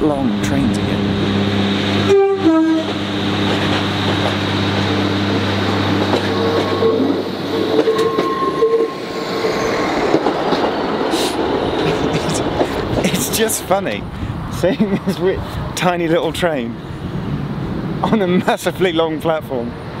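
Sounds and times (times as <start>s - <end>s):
diesel engine running: 0.0s - 7.8s
train wheels rolling: 1.1s - 14.0s
two-tone train horn toot: 2.0s - 3.0s, 6.3s - 7.2s, 7.8s - 9.0s
thin wheel squeals: 6.3s - 9.7s.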